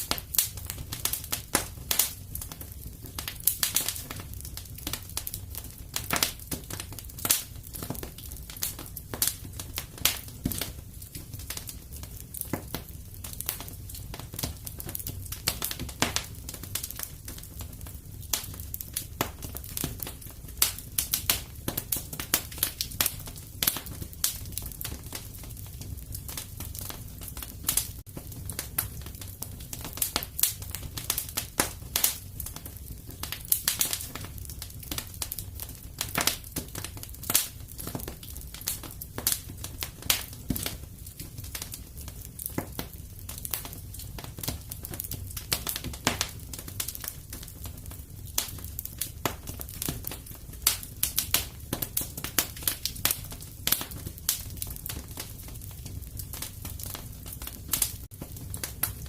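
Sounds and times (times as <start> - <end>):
flames rumbling: 0.0 - 59.0
wood fire crackling and popping: 0.0 - 59.0.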